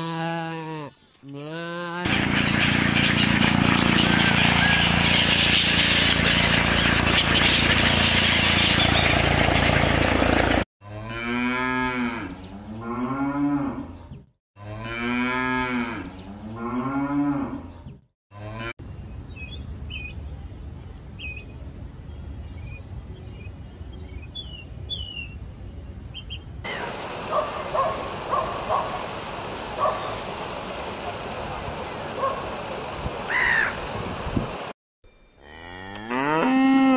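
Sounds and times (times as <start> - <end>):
birds splashing and wing-flapping: 2.1 - 10.6, 26.7 - 34.7
gulls calling: 2.1 - 10.6, 26.7 - 34.0
cattle mooing: 35.4 - 36.9.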